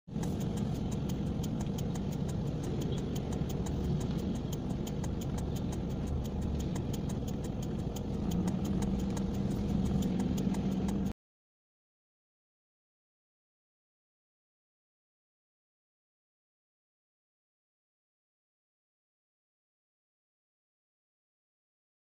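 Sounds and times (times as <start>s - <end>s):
car engine idling: 0.1s - 11.1s
fast even ticking: 0.1s - 11.1s.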